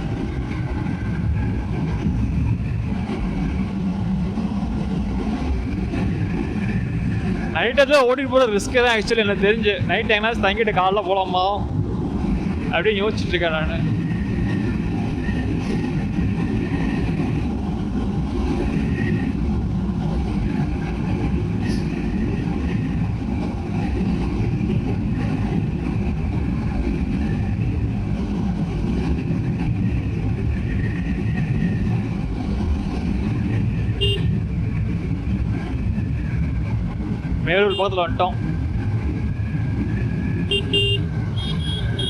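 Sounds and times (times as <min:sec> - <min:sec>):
wind rumble: 0:00.0 - 0:42.0
motorcycle engine: 0:32.3 - 0:35.4, 0:37.5 - 0:42.0
faint vehicle horns: 0:34.0 - 0:34.4, 0:37.7 - 0:38.0, 0:40.5 - 0:42.0.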